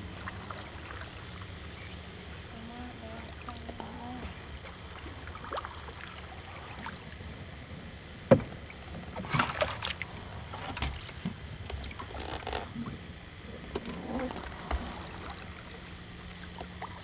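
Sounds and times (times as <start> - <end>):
paddle splashes and drips: 0.0 - 2.0, 3.0 - 7.6, 8.4 - 17.0
sharp knock on canoe: 8.3 - 8.6.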